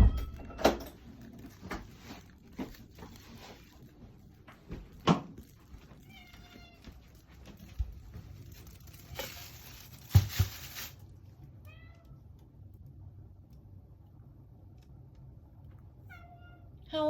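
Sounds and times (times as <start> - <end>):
rustling: 1.0 - 11.2
cat meowing: 6.0 - 6.9, 16.1 - 16.7.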